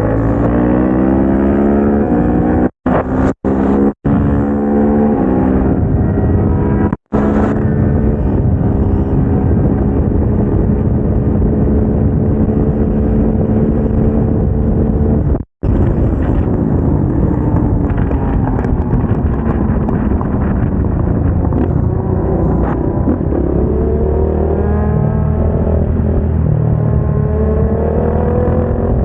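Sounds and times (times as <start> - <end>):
wind rush on microphone: 0.0 - 29.0.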